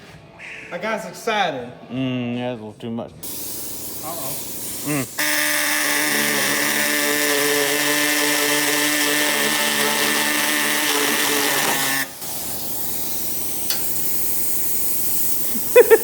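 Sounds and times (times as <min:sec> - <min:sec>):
handheld power tool running: 0:03.2 - 0:16.0.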